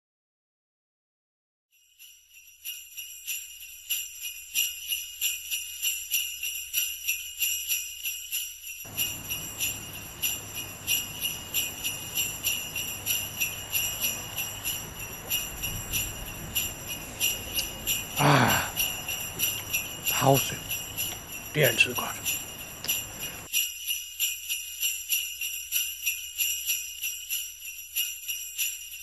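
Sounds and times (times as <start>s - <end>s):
sleigh bells shaking: 1.7s - 29.0s
background noise with low hum: 8.9s - 23.5s.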